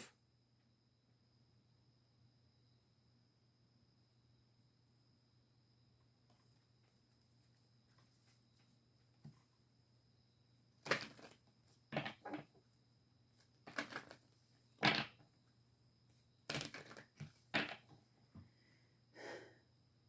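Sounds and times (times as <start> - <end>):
cards rustling and snapping: 10.9 - 11.4, 13.7 - 14.2.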